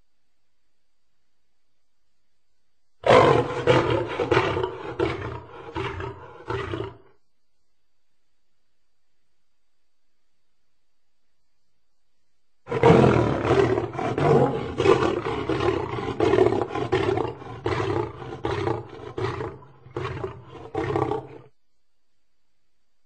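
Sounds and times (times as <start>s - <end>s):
lion roaring: 3.0s - 7.1s, 12.7s - 21.5s.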